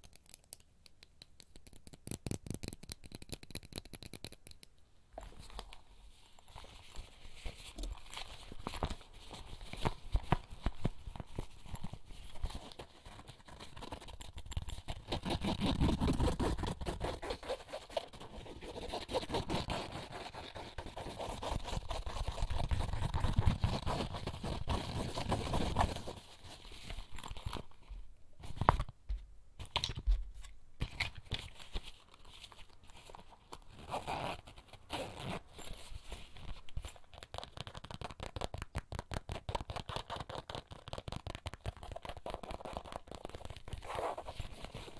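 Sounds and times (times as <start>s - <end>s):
crinkling and rustling: 5.2s - 17.0s.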